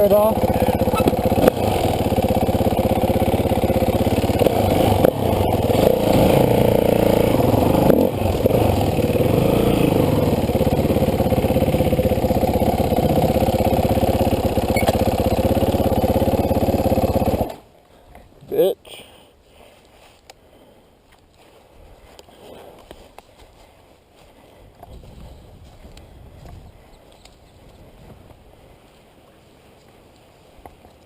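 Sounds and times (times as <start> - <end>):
dirt bike engine running: 0.0 - 17.6.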